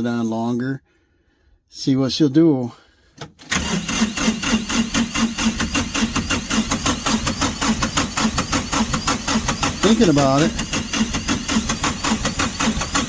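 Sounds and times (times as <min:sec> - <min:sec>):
diesel engine cranking on starter: 0:03.2 - 0:13.0.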